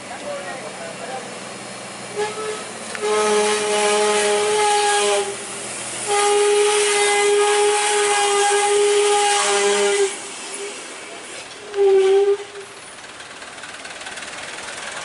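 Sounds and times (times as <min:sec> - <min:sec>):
vehicle air horn blasts: 0:02.1 - 0:05.4, 0:06.0 - 0:10.2, 0:11.6 - 0:12.6.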